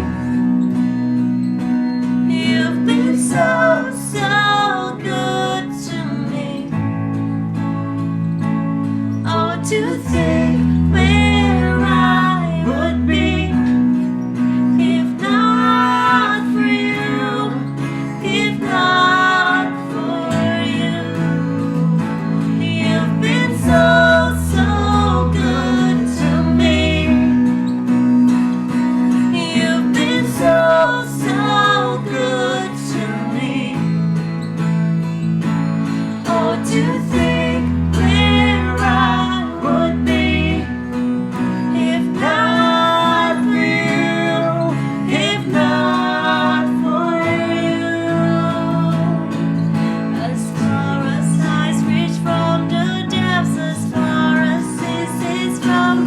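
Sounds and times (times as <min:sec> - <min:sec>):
acoustic guitar chords: 0:00.0 - 0:56.0
woman singing: 0:02.0 - 0:07.7, 0:09.2 - 0:28.0, 0:29.0 - 0:34.4, 0:36.0 - 0:56.0
deep bass line: 0:34.9 - 0:46.2.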